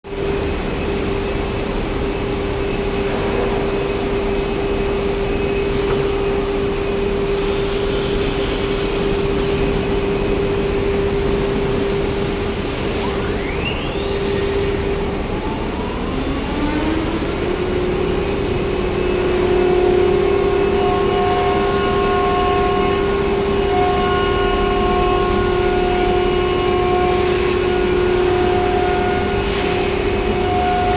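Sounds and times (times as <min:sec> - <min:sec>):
cnc router hum: 0:00.1 - 0:30.9
spindle whine: 0:00.3 - 0:20.8.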